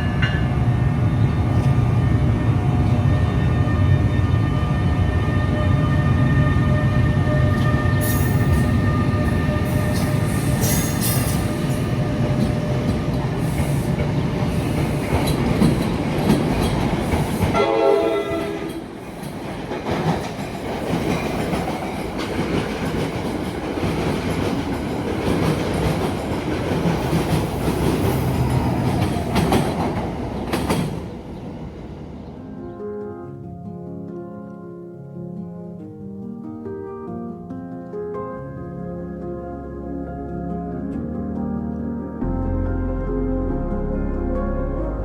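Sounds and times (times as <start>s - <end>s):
train wheels rumbling on rails: 0.0s - 32.3s
train horn blast: 2.6s - 12.3s, 17.4s - 19.0s.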